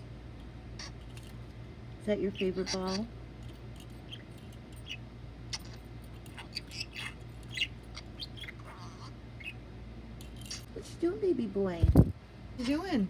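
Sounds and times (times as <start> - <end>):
budgerigar chirping: 2.2 - 3.1, 4.0 - 9.6.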